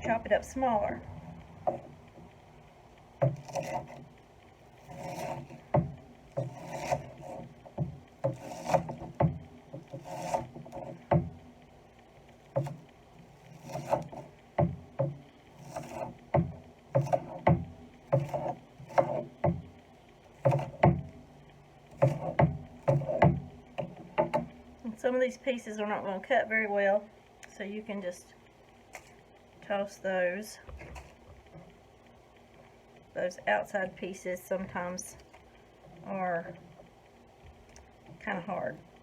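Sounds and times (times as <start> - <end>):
knife crunching through onion: 6.4 - 7.5.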